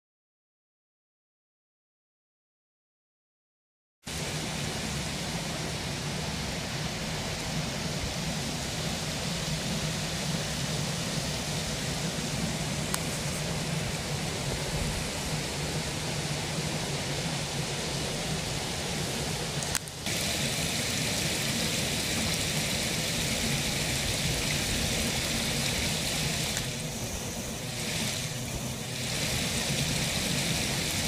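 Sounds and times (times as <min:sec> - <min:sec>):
stream water rushing: 0:04.1 - 0:31.0
faint click: 0:12.9 - 0:13.1.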